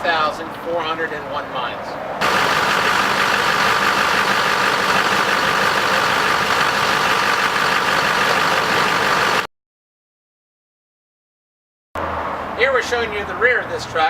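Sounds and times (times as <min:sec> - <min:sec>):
diesel engine idling: 0:02.2 - 0:09.5.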